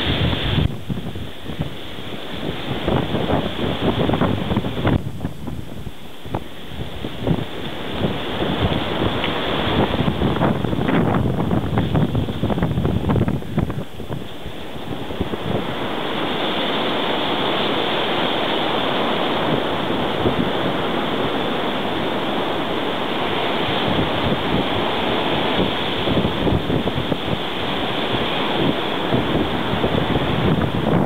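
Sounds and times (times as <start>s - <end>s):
blizzard wind blowing: 0.0s - 31.0s
gusts buffeting microphone: 0.0s - 31.0s.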